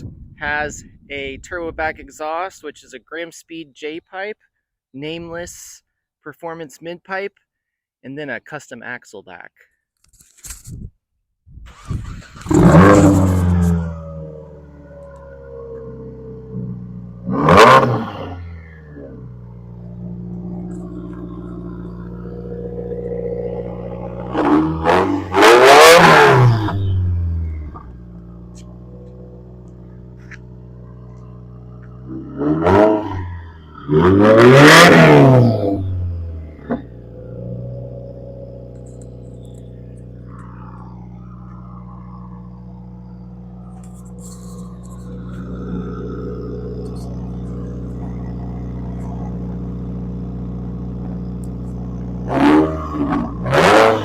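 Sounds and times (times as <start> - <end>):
exhaust crack: 11.6 - 54.0
car engine idling: 11.7 - 54.0.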